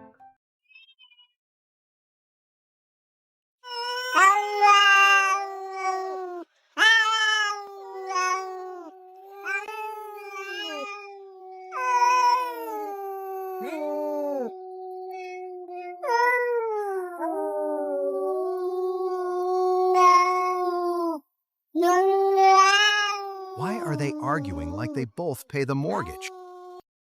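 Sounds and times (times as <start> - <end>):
cats yowling: 3.7 - 21.2, 21.8 - 24.9.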